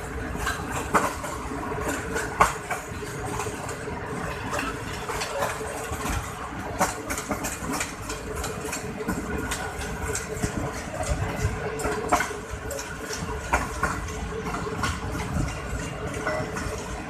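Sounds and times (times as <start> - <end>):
train rushing at speed: 0.0 - 17.0
wheels clacking over track: 0.0 - 17.0.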